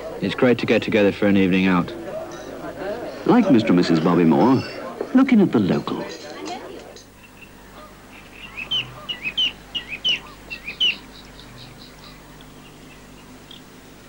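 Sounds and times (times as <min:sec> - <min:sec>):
faint steady hum: 0:00.0 - 0:14.0
small songbird chirping: 0:07.1 - 0:13.8.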